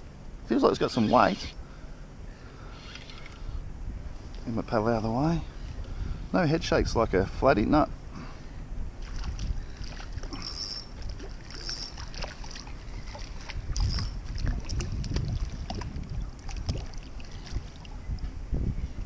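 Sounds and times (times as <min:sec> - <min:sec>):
wind buffeting microphone: 0:03.2 - 0:19.0
water lapping against kayak hull: 0:09.0 - 0:18.4.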